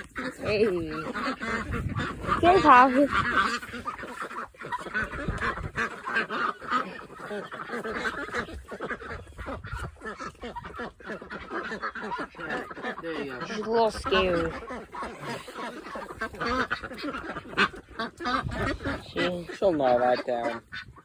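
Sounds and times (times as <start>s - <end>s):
poultry calling: 0.0s - 21.0s.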